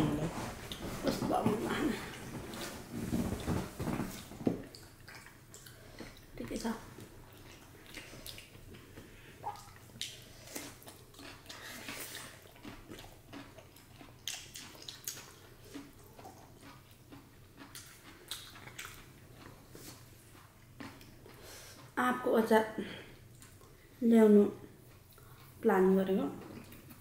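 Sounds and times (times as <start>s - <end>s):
chewing and mouth smacks: 4.6s - 22.0s, 23.3s - 23.8s.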